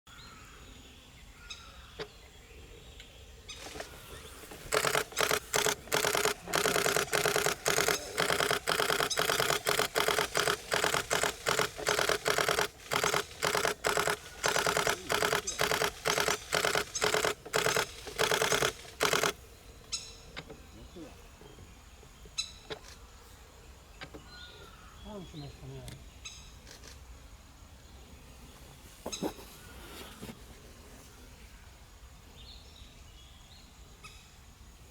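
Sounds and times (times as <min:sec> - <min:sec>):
camera shutter rapid bursts: 0:03.5 - 0:19.4.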